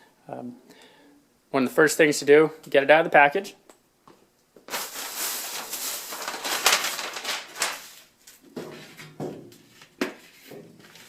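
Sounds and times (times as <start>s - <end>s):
packaging tearing and crinkling: 4.7s - 8.1s.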